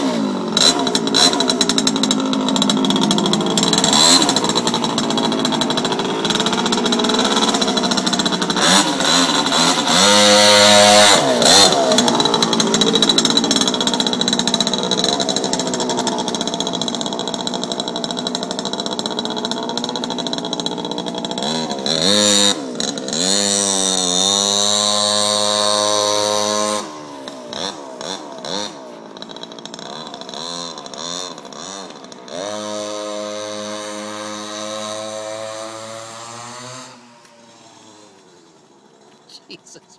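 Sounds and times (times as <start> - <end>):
mini bike engine revving: 0.0 - 39.9.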